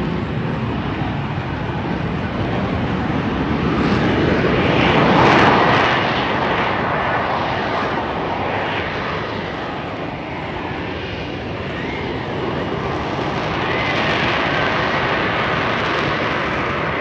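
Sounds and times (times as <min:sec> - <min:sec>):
aircraft passing: 0:00.0 - 0:17.0.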